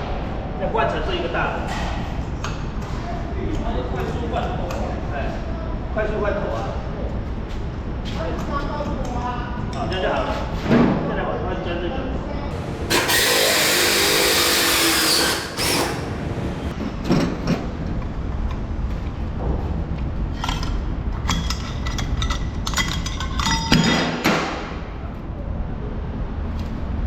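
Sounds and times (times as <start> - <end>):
drill cutting into steel: 12.5 - 16.7.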